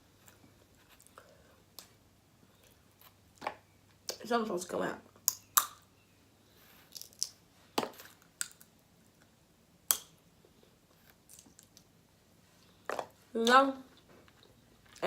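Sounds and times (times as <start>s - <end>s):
crab shells cracking: 6.9s - 7.4s, 8.4s - 8.7s.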